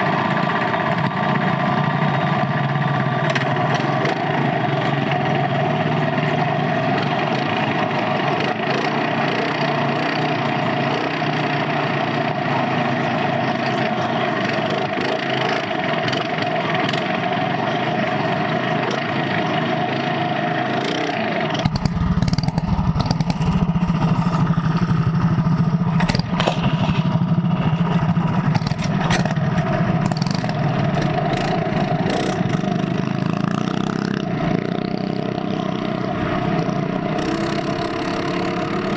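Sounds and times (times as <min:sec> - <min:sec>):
minibike engine running hard: 0:00.0 - 0:38.9
deep engine rumble: 0:21.5 - 0:38.9.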